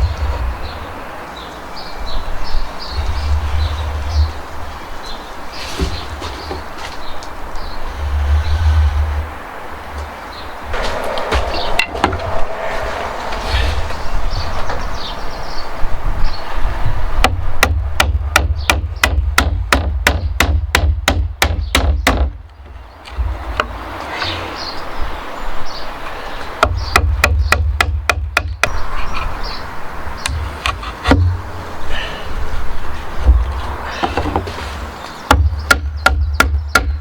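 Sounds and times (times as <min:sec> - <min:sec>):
hammer knocking on timber: 0:17.2 - 0:22.4, 0:35.3 - 0:37.0.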